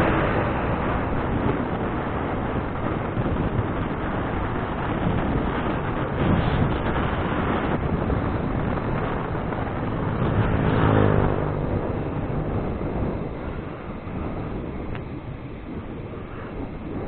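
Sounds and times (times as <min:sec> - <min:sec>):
motor vehicle passing: 0:00.0 - 0:03.0, 0:06.4 - 0:15.0
wind rushing over microphone: 0:00.0 - 0:17.0.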